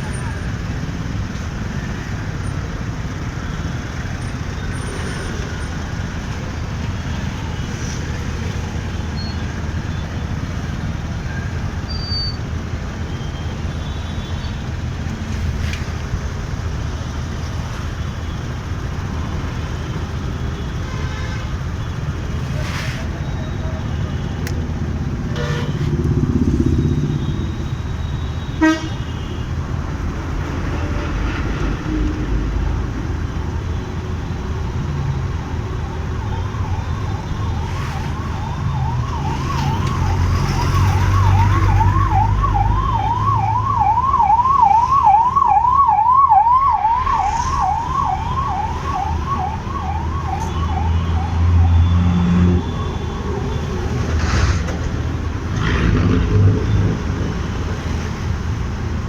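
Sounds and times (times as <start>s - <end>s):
road traffic rumble: 0.0s - 59.0s
motorbike: 14.5s - 44.2s, 51.1s - 59.0s
emergency siren wailing: 34.7s - 54.1s.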